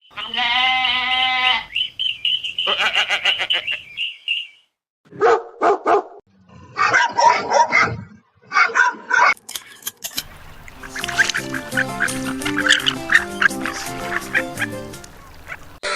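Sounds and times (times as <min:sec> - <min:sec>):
held pitched animal call: 0:00.1 - 0:04.5, 0:10.8 - 0:15.9
dog barks: 0:05.1 - 0:06.2, 0:06.8 - 0:09.4
high pulsing animal call: 0:10.8 - 0:15.9.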